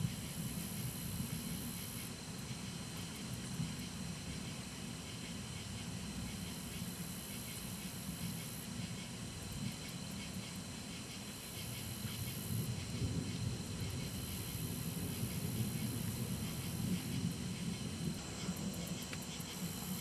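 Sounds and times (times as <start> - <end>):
low continuous rumble: 0.0 - 20.0
steady hiss: 0.0 - 20.0.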